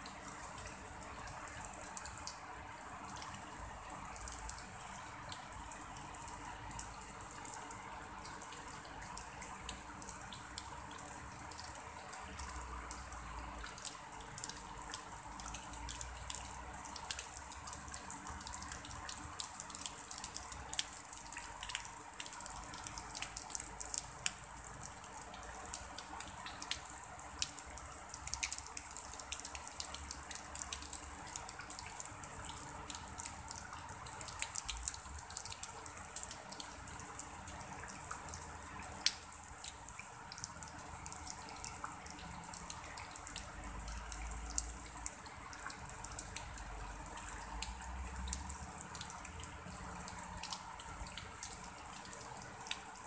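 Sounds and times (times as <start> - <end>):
light drizzle on pond: 0.0 - 53.0.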